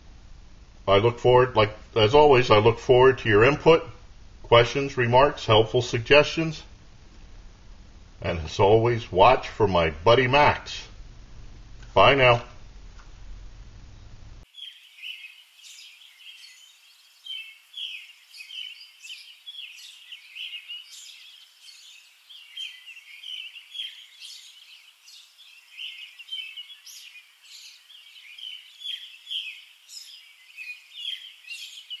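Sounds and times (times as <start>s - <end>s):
songbirds chirping and singing: 0.9s - 3.9s, 14.5s - 32.0s.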